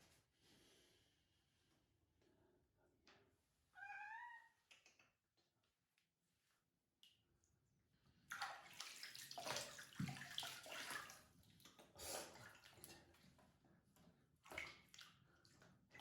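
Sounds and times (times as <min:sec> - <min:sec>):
water splashing in a bath: 0:07.0 - 0:13.4, 0:14.0 - 0:16.0.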